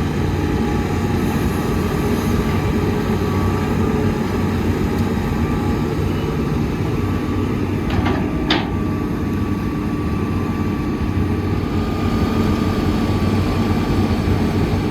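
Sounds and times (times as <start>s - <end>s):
heavy diesel engine running: 0.0s - 14.9s
metallic clanks: 7.8s - 8.9s.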